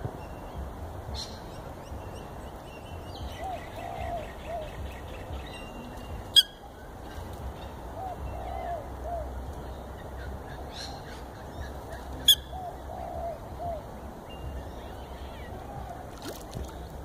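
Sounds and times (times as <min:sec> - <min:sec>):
small birds chirping: 0:00.2 - 0:16.1
bird cooing: 0:03.3 - 0:06.5, 0:08.0 - 0:09.4, 0:10.2 - 0:14.0.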